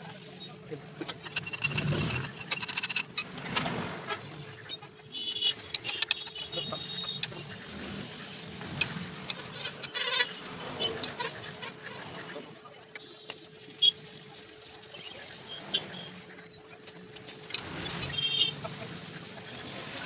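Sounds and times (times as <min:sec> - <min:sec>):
metal tools clinking: 0:00.4 - 0:05.0.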